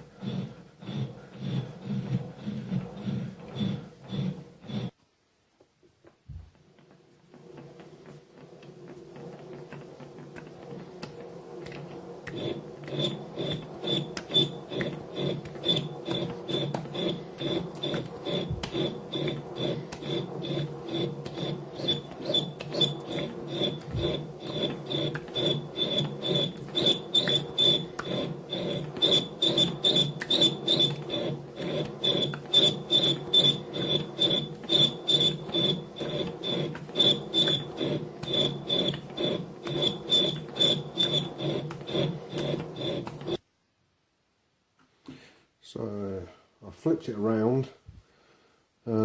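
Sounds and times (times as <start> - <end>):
lathe tool chattering with squeal: 12.3 - 43.4.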